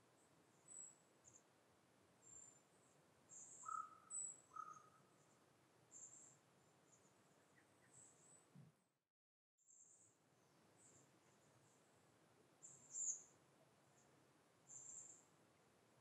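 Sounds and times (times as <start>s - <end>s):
high thin songbird chirps: 3.3s - 5.0s, 12.6s - 13.3s.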